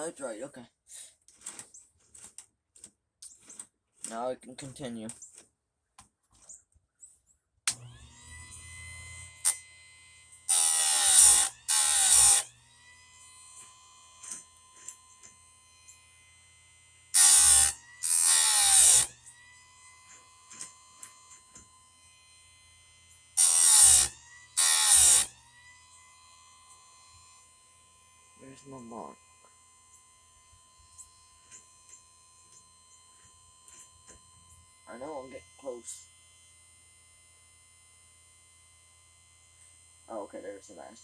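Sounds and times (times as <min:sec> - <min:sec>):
grinder grinding chain teeth: 0:07.7 - 0:16.4, 0:17.1 - 0:27.7
sharpener motor whining: 0:07.7 - 0:41.0.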